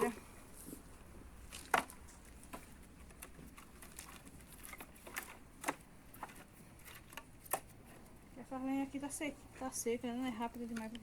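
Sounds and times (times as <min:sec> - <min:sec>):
firewood knocks and snaps: 0:01.4 - 0:07.9.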